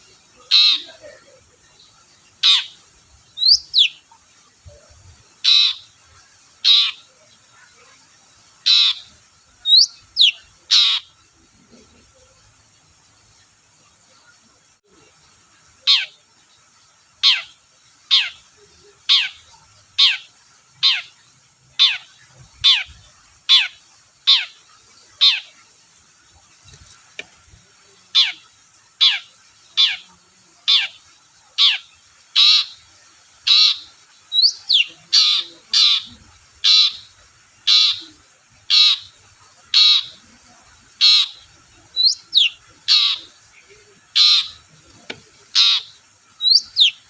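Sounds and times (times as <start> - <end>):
bird harsh calls: 0.0 - 1.3, 2.3 - 4.1, 4.9 - 7.1, 8.6 - 11.2, 17.2 - 25.6, 28.1 - 32.8, 33.4 - 40.3, 40.9 - 47.0.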